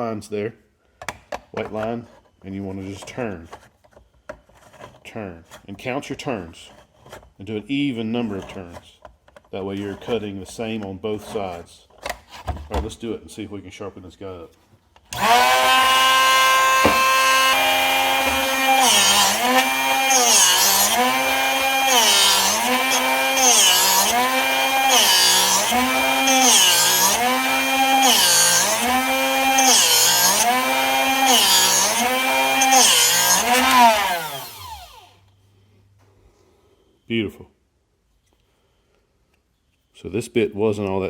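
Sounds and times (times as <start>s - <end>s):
sharpener motor running: 15.2s - 35.2s.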